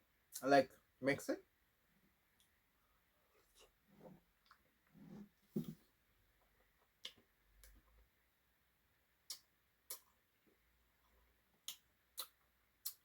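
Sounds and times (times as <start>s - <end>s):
mouth sounds eating ice cream: 9.2s - 10.2s, 11.6s - 13.0s.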